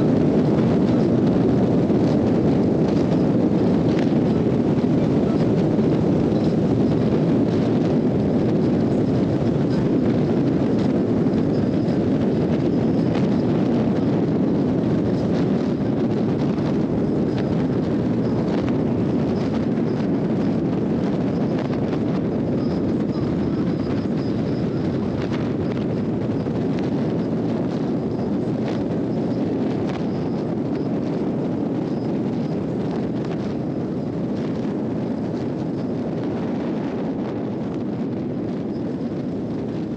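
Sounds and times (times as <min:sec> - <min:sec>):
motorcycle engine running: 0:00.0 - 0:31.0
wind rush over microphone: 0:00.0 - 0:39.9.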